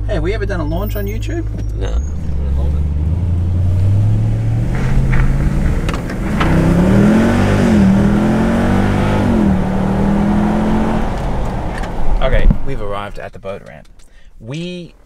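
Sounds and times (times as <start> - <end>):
engine accelerating hard: 1.8 - 12.7.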